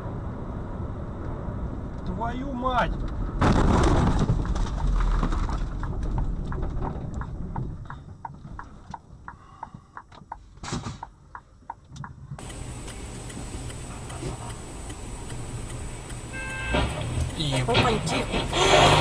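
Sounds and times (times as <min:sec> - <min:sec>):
car crash: 0:03.2 - 0:07.1, 0:16.3 - 0:19.0
regular clicks: 0:05.8 - 0:19.0.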